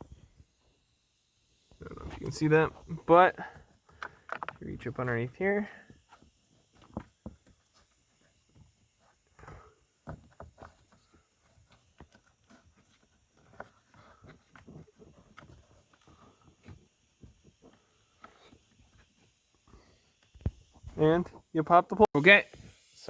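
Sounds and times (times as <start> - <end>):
plastic clicks and knocks: 3.9 - 4.6.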